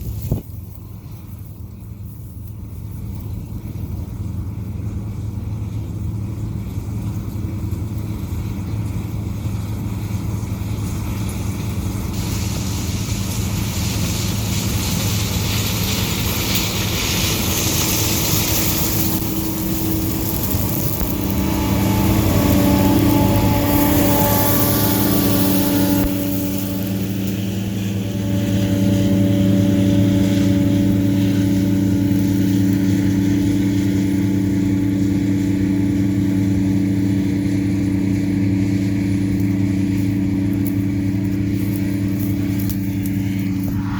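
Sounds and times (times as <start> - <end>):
combine harvester engine drone: 0.0 - 43.9
loud hiss: 12.2 - 35.3
high whining tones: 16.1 - 43.9.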